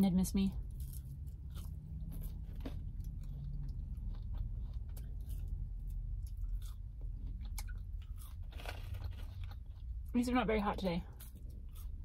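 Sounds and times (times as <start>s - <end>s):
steady low hum: 0.0s - 12.0s
person chewing fries: 0.6s - 10.1s, 11.0s - 12.0s.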